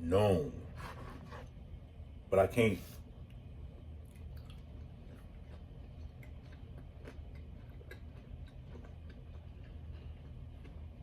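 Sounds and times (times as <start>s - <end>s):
man chewing food: 3.3s - 11.0s.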